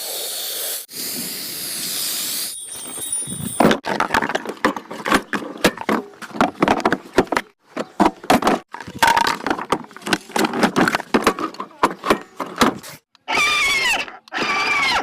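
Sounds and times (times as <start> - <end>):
toy car and packaging rattling: 8.4 - 13.0.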